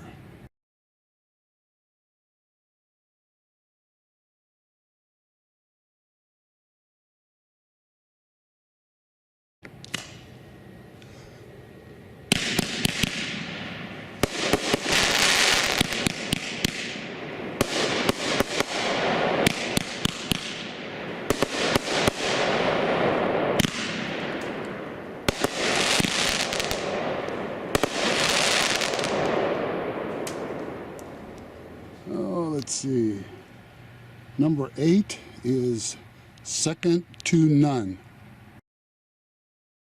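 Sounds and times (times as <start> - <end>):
fireworks shots with hiss: 9.7 - 10.5, 12.3 - 31.4.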